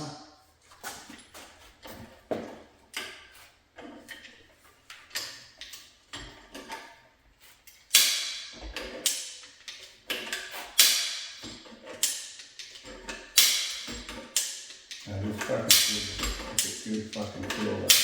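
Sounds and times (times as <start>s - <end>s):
hammer striking metal: 15.6s - 16.8s.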